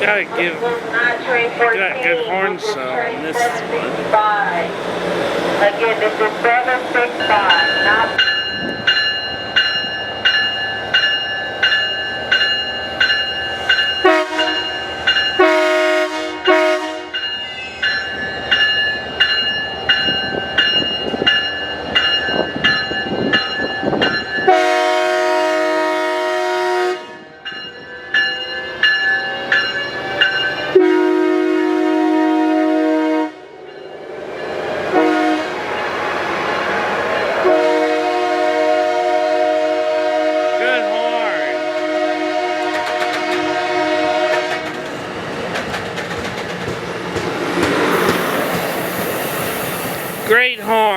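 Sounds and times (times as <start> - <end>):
locomotive bell ringing: 5.7 - 15.8, 16.4 - 24.8, 27.3 - 31.0, 33.6 - 34.8, 36.8 - 37.8, 50.2 - 50.9
train air horn blasts: 14.0 - 14.7, 15.4 - 17.2, 24.4 - 27.4, 30.8 - 33.6, 34.9 - 35.6, 37.4 - 44.7.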